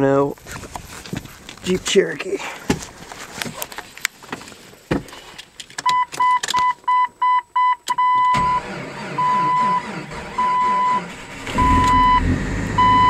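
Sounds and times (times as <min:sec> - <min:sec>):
car engine starting: 0:07.8 - 0:13.0
rapid electronic warning beeps: 0:12.8 - 0:13.0.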